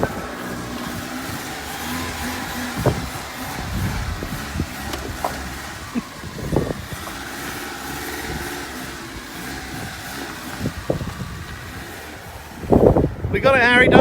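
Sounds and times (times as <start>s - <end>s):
vehicle engine running: 0.0s - 14.0s
knocks and thumps: 1.8s - 5.7s.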